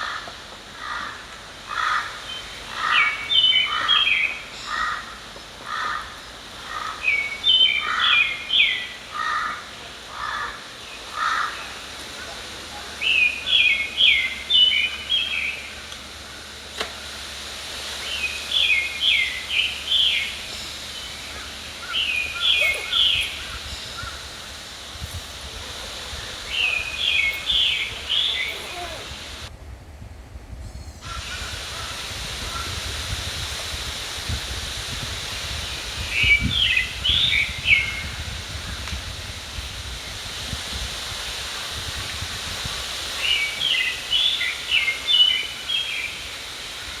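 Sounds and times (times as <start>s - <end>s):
low rumble of wind: 0.0s - 47.0s
babbling stream: 17.6s - 29.5s, 39.4s - 47.0s
songbird whistling phrases: 21.0s - 24.2s, 26.4s - 29.4s.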